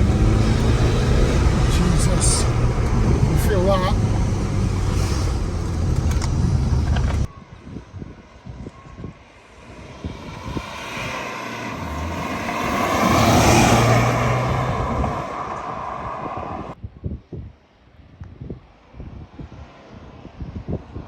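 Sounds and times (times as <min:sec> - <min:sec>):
vehicle passing by: 0:00.0 - 0:07.3, 0:09.5 - 0:16.8.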